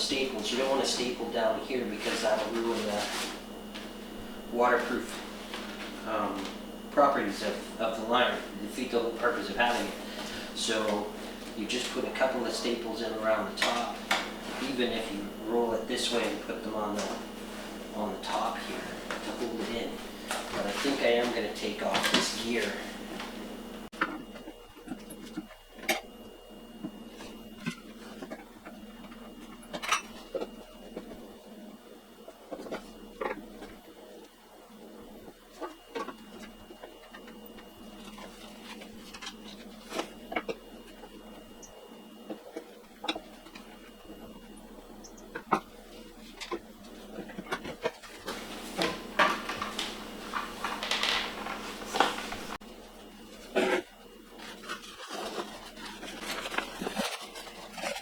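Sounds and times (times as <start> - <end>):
plastic sheet rustling and crinkling: 0.0 - 15.2, 15.9 - 23.4, 35.3 - 40.3, 45.8 - 58.0
faint steady hum: 0.0 - 58.0.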